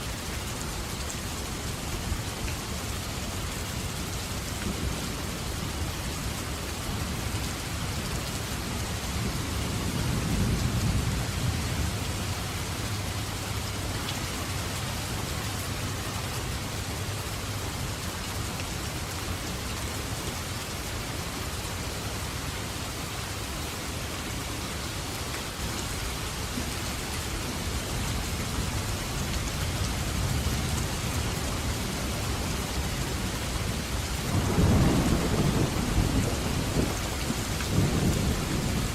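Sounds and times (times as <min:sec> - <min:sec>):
steady rain falling: 0:00.0 - 0:38.9
low rolling thunder: 0:09.1 - 0:12.8, 0:29.8 - 0:38.9.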